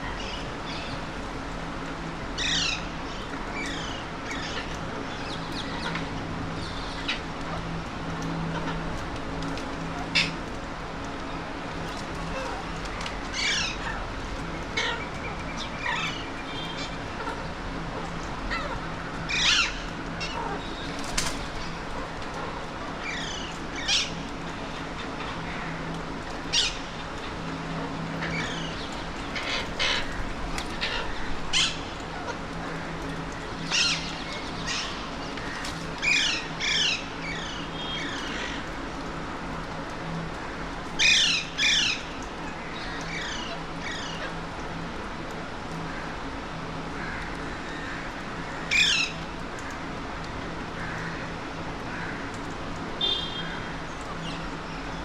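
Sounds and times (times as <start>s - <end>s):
low background hum: 0.0s - 55.0s
parakeets squawking: 14.7s - 20.9s, 26.4s - 38.6s.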